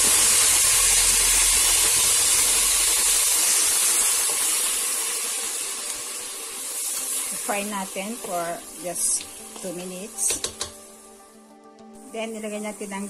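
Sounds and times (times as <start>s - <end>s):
tomatoes sizzling in hot oil: 0.0s - 13.0s.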